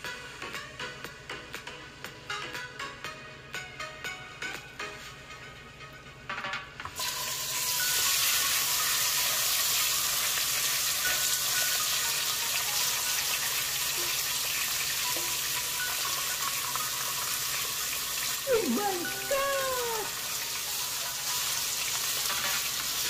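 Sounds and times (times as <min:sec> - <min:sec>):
food sizzling in hot oil: 0:07.0 - 0:23.0.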